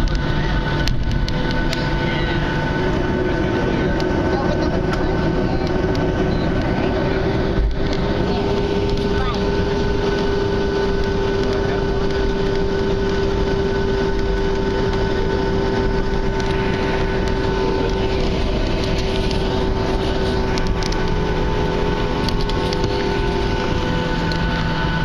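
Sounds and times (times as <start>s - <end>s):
jet engines heard in cabin: 0.0s - 25.0s.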